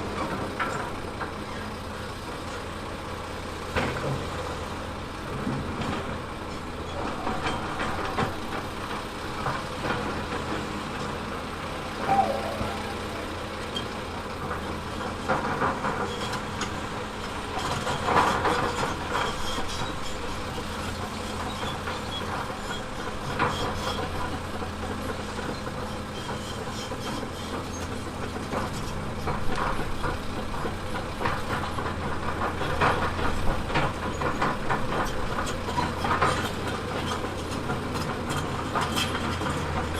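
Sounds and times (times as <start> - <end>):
diesel engine running: 0.0 - 39.9
clanks and scraping of rock: 31.2 - 39.9.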